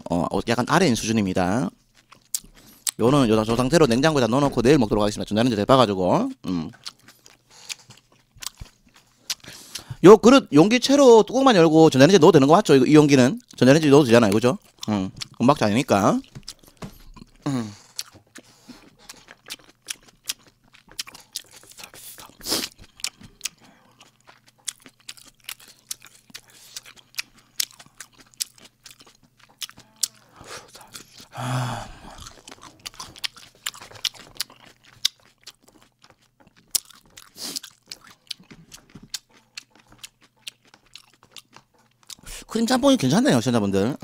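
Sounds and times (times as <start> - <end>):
chewing and wet mouth sounds: 1.0 - 4.6, 6.3 - 10.0, 13.0 - 43.6
person humming: 17.4 - 17.8, 29.8 - 32.4.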